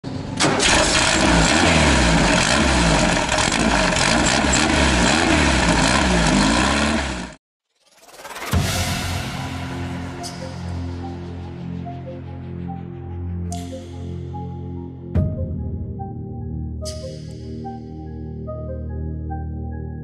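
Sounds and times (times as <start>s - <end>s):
racing car engine revving: 0.6s - 7.4s.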